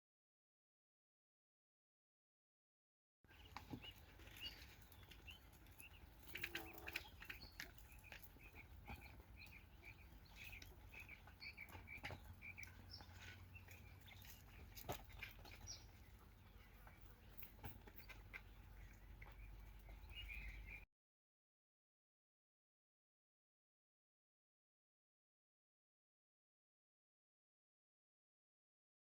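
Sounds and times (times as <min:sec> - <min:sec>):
quail chirping: 0:03.3 - 0:20.8.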